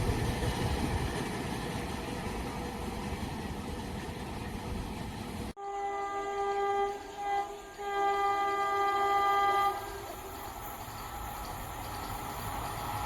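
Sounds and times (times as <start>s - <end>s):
train horn blasts: 5.6s - 10.4s.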